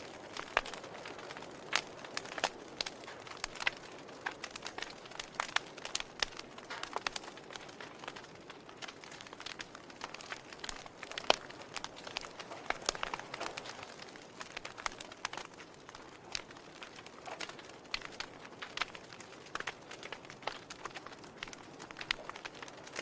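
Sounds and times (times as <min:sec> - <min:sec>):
fire crackling and popping: 0:00.0 - 0:23.0.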